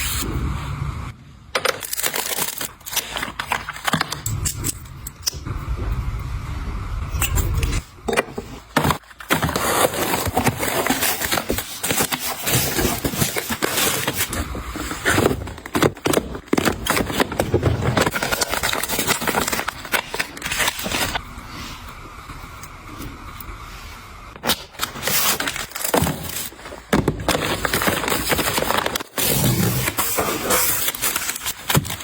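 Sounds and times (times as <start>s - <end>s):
packaging rustling and crinkling: 1.6s - 4.5s, 8.3s - 21.2s, 24.7s - 32.0s.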